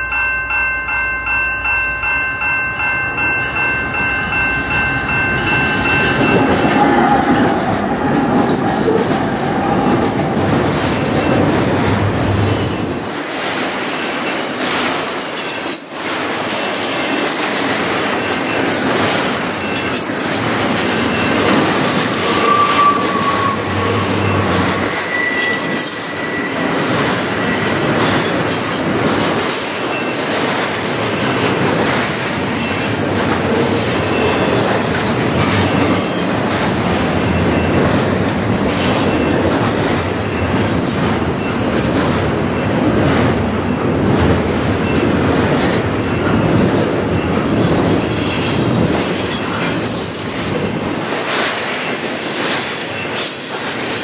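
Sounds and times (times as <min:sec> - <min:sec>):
train wheels rumbling and clattering: 0:02.4 - 0:54.0
high wheel squeals: 0:21.0 - 0:28.4.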